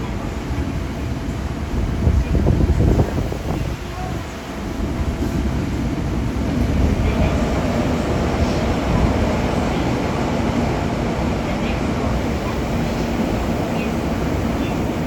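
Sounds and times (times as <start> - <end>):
subway train wheels rumbling: 0.0 - 15.0.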